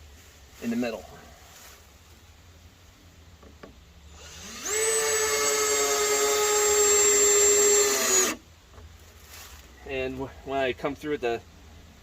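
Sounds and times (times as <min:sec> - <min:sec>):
cordless drill whining: 0:04.2 - 0:08.4.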